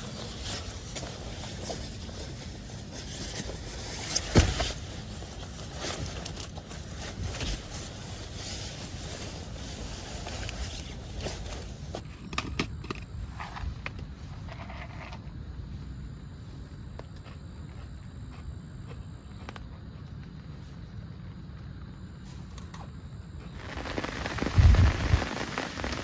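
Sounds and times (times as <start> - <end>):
clinks and knocks of gear handled: 4.0 - 8.2, 10.2 - 12.0
steady low rumble: 23.1 - 26.0.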